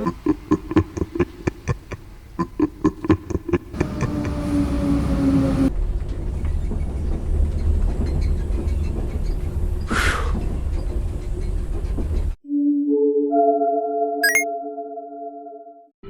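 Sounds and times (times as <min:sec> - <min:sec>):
train rumbling: 0:00.0 - 0:12.4
held tone: 0:14.2 - 0:14.4.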